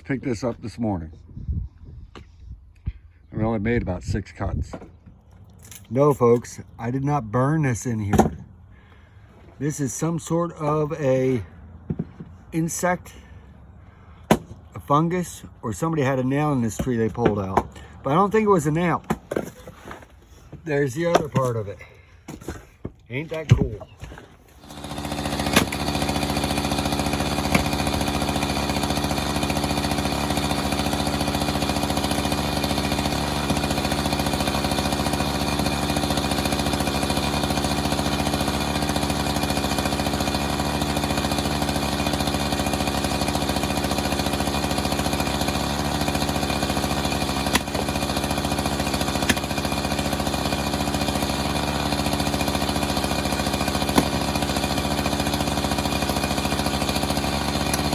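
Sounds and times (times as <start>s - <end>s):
small engine running: 24.4s - 57.9s.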